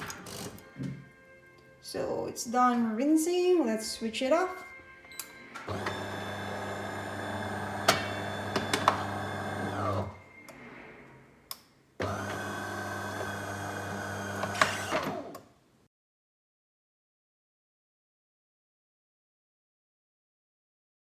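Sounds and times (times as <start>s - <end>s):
coffee machine humming: 5.7s - 10.2s, 12.0s - 15.3s.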